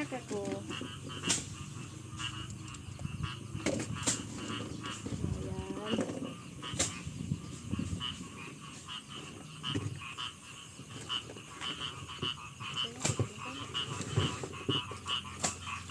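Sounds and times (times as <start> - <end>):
frogs croaking: 0.0 - 15.9
dull thumps of threshing: 1.2 - 1.7.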